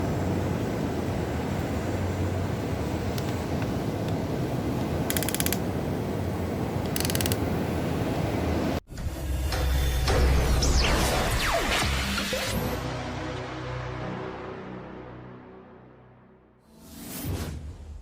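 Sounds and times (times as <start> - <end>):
creaking: 5.1 - 5.6, 6.8 - 7.4
rapid clicking: 5.1 - 5.6, 6.9 - 7.4
small electric motors and gears: 5.1 - 5.6, 6.9 - 7.4.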